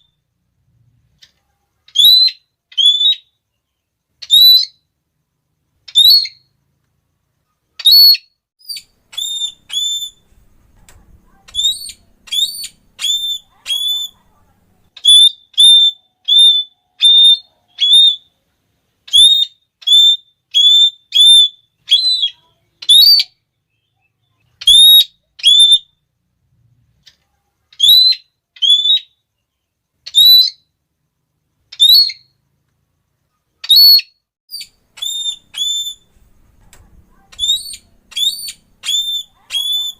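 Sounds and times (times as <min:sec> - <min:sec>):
parrot shrill calls: 0:01.9 - 0:03.3, 0:04.2 - 0:04.8, 0:05.9 - 0:06.5, 0:07.8 - 0:10.3, 0:11.3 - 0:14.2, 0:15.0 - 0:18.3, 0:19.1 - 0:23.4, 0:24.6 - 0:26.0, 0:27.8 - 0:29.2, 0:30.1 - 0:30.7, 0:31.7 - 0:32.3, 0:33.6 - 0:36.2, 0:37.1 - 0:39.9.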